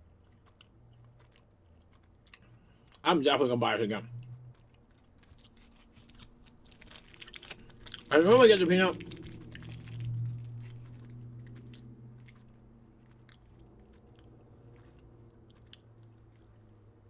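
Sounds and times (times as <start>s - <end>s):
low steady hum: 0.0s - 17.0s
person chewing crunchy food: 0.0s - 17.0s.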